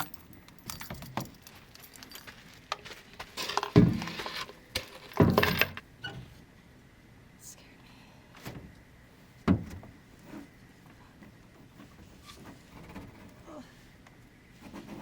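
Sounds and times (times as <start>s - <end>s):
light metallic clinking: 0.0s - 2.4s.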